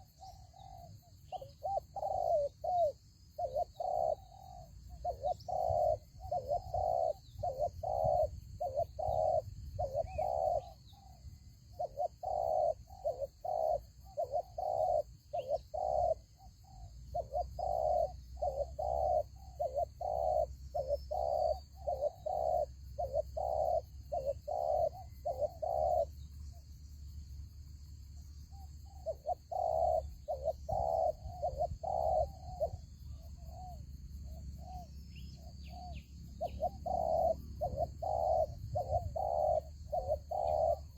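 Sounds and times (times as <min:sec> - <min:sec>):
doves cooing: 0:00.0 - 0:11.2, 0:11.8 - 0:26.2, 0:28.6 - 0:40.9
faint small-bird chirps: 0:00.0 - 0:40.9.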